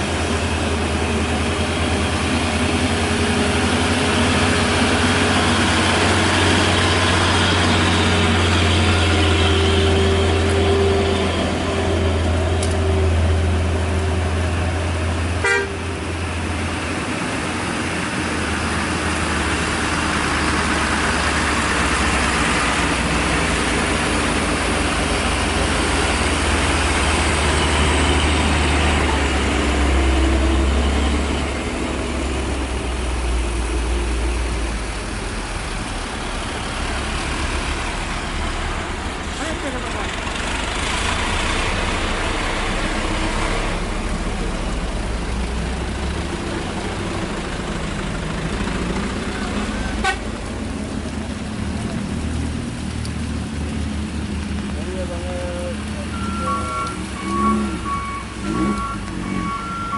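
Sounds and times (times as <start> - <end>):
heavy diesel engine running: 0.0 - 59.9
honk-like tone: 15.4 - 15.8.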